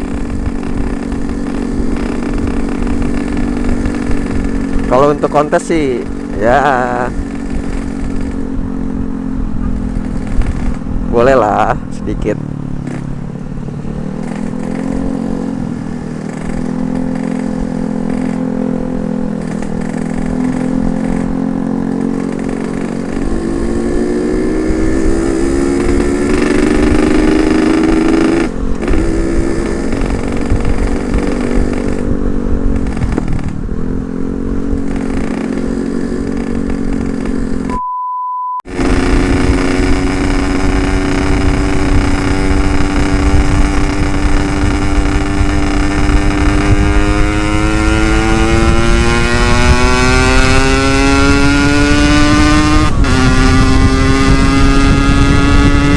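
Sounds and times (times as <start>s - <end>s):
two-stroke engine revving: 0.0s - 37.7s, 38.6s - 55.9s
short beep tone: 37.7s - 38.7s.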